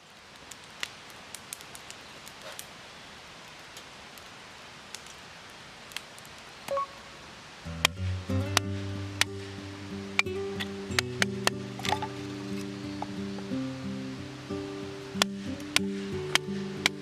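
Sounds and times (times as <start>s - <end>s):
sharp crackles and ticks: 0.0s - 2.8s, 3.4s - 6.9s, 7.7s - 9.4s, 10.0s - 13.6s, 14.6s - 17.0s
steady hiss: 0.0s - 17.0s
music: 7.7s - 17.0s.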